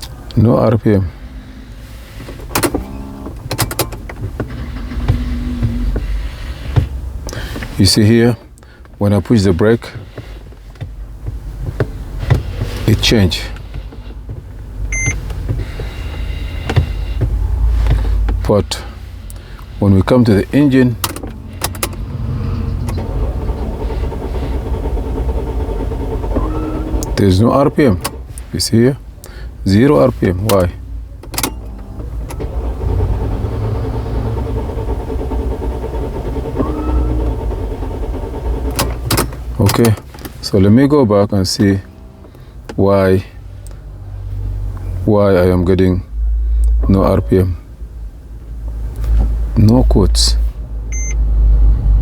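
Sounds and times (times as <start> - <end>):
engine cranking on starter motor: 1.1 - 7.8, 12.0 - 40.9
sharp clicks inside a car: 2.1 - 18.7, 19.3 - 22.2, 22.8 - 42.8, 48.4 - 50.0
steady whine: 16.0 - 27.8.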